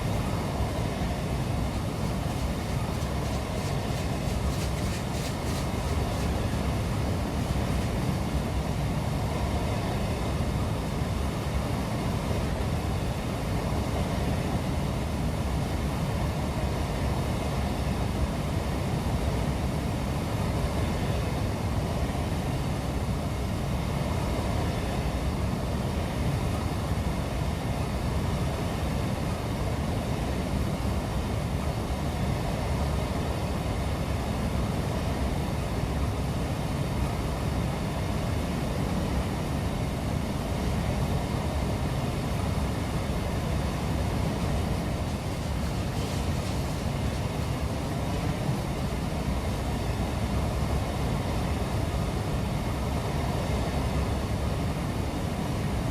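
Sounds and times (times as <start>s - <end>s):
train wheels rumbling on rail: 0.0s - 8.2s, 44.2s - 50.6s.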